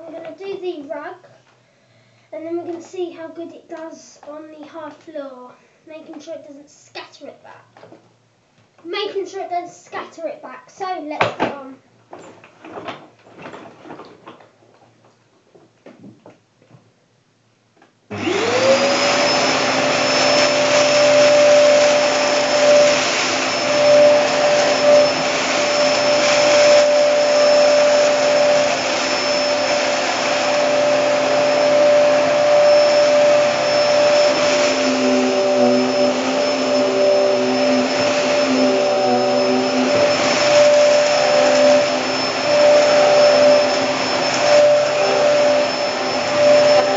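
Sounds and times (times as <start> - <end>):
vacuum cleaner motor whine: 18.1 - 46.9.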